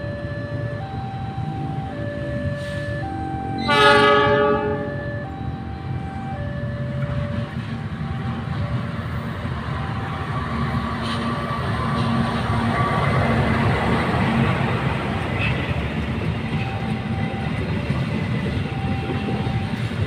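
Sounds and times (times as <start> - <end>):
level crossing two-tone alarm: 0.0 - 10.6, 16.6 - 20.0
low rumble of train: 0.0 - 20.0
locomotive horn blowing: 3.6 - 5.3.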